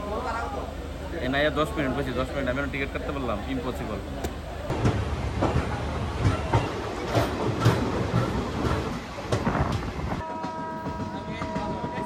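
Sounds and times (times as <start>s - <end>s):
low train rumble: 0.0s - 12.0s
train wheels clacking over rail joints: 4.2s - 12.0s.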